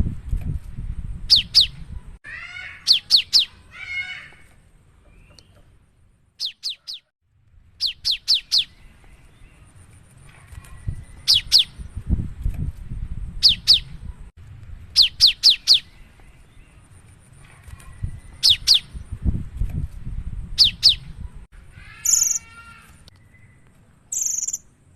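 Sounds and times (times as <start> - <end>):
bird whistling song: 1.3 - 1.8, 2.8 - 3.6, 6.4 - 7.1, 7.8 - 9.5, 10.8 - 11.8, 13.4 - 14.0, 15.0 - 16.0, 17.9 - 19.0, 20.6 - 21.1, 23.1 - 24.7
faint low rumble: 8.7 - 21.8.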